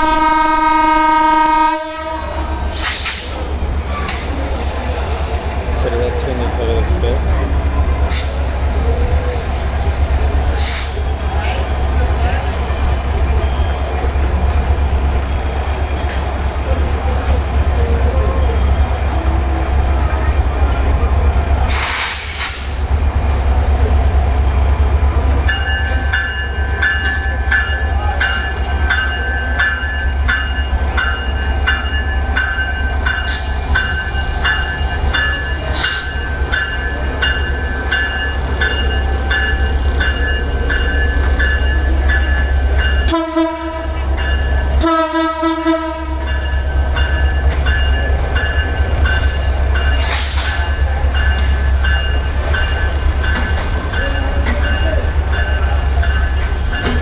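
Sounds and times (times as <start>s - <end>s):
locomotive horn: 0.0s - 2.7s, 43.1s - 44.1s, 44.8s - 46.3s
train rumble: 0.0s - 57.0s.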